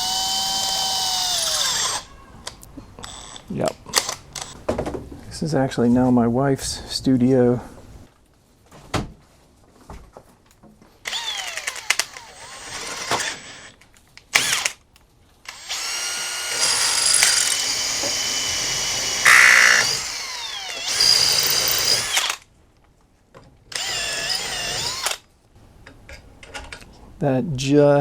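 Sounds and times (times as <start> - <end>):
power drill drilling: 0.0 - 2.1, 11.1 - 13.8, 14.4 - 14.8, 15.5 - 22.4, 23.7 - 25.2.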